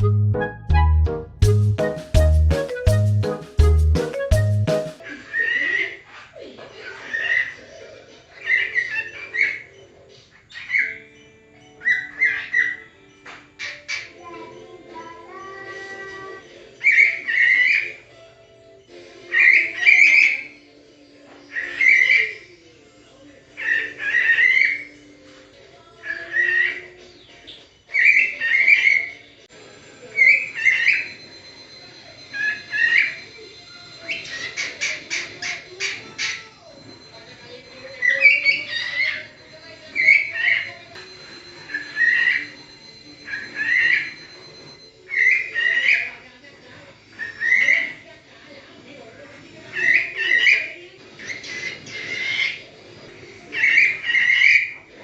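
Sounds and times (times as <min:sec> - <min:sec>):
parrot chirping calls: 0:11.8 - 0:12.9, 0:23.6 - 0:25.0, 0:32.2 - 0:36.6, 0:37.2 - 0:40.9, 0:41.6 - 0:44.2, 0:49.7 - 0:52.7, 0:53.4 - 0:54.9.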